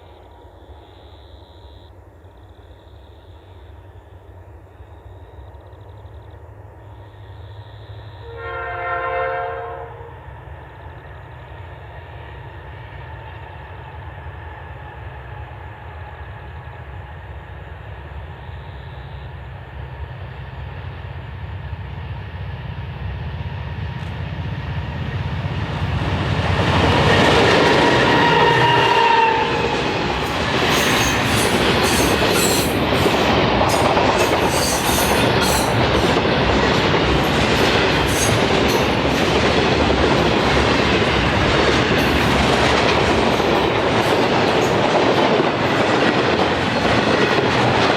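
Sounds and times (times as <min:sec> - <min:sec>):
locomotive horn blast: 0:08.2 - 0:10.2, 0:27.7 - 0:29.9
locomotive engines: 0:10.2 - 0:47.9
wheels clicking over rail joints: 0:29.9 - 0:47.9.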